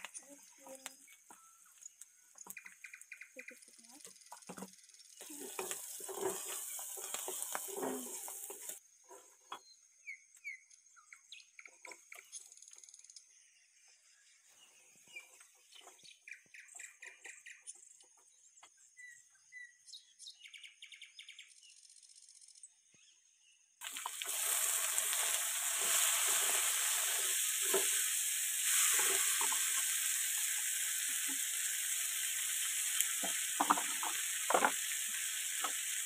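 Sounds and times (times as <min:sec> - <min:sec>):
birds chirping: 0:00.0 - 0:08.7, 0:09.5 - 0:22.0
stir-fry sizzling in a pan: 0:03.9 - 0:08.8, 0:23.8 - 0:36.0.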